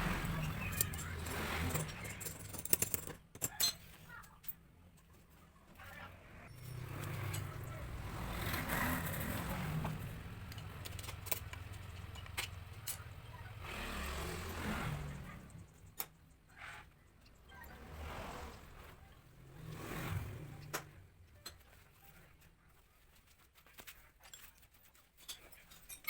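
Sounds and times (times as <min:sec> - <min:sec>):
vehicle engine running: 0:00.0 - 0:02.4, 0:06.6 - 0:15.9.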